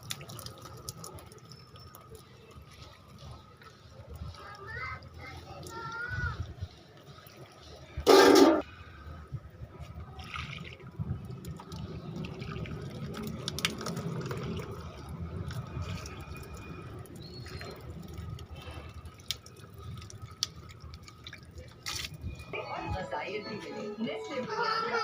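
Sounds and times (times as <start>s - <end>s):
water pouring onto plants: 0.0s - 3.5s, 10.2s - 22.5s.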